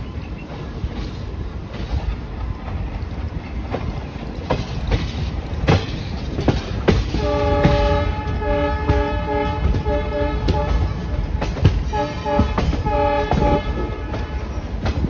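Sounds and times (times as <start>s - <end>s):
train wheels clicking over rail joints: 0.0s - 15.0s
locomotive horn blasts: 7.1s - 11.2s, 11.8s - 14.7s.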